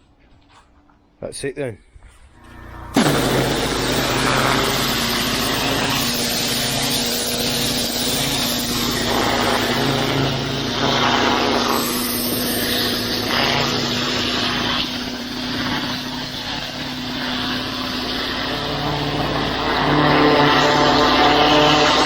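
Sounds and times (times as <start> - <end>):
high-pressure water jet hissing: 2.4 - 22.0
pressure washer engine hum: 2.4 - 22.0.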